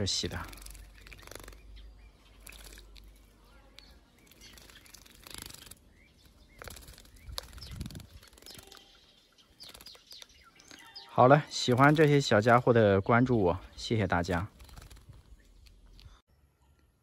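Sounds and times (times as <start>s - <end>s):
faint bird chirps: 0.0s - 17.0s
bird fluttering wings in water: 0.2s - 1.7s, 2.3s - 3.3s, 4.2s - 8.9s, 9.6s - 10.3s, 14.2s - 15.4s.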